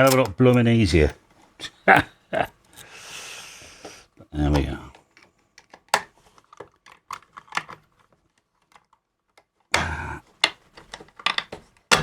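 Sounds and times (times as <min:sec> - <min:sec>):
small metal hardware clicking: 0:00.0 - 0:00.8.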